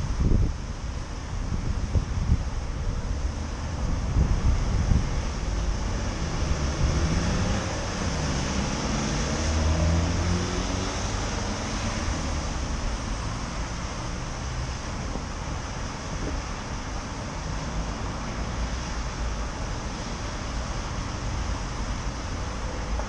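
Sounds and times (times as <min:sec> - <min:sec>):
wind rumble on microphone: 0:00.0 - 0:23.0
vehicle engine passing: 0:05.5 - 0:14.3.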